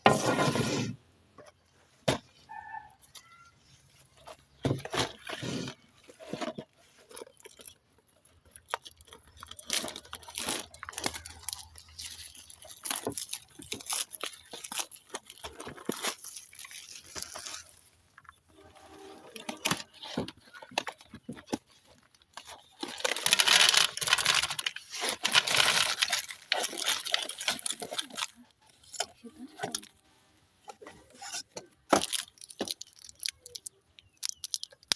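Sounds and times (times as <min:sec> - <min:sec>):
candy crunching in a grinder: 0:05.1 - 0:18.4, 0:19.4 - 0:30.0, 0:31.4 - 0:34.9.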